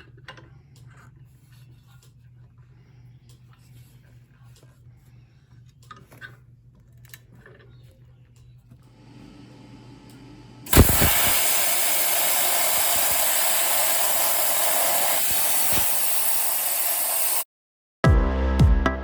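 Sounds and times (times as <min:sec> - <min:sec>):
plasma cutter hissing: 0:10.7 - 0:17.4
electronic music with a beat: 0:18.0 - 0:19.0.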